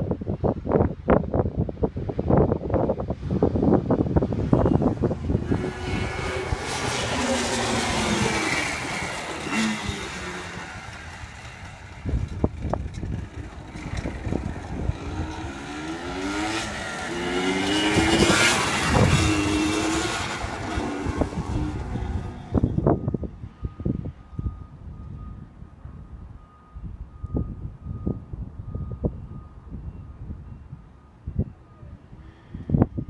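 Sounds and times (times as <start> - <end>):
two-stroke engine revving: 4.3 - 23.0.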